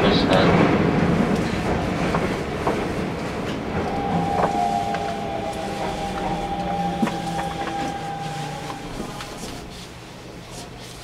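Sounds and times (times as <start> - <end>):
electric train whine: 2.6 - 10.3.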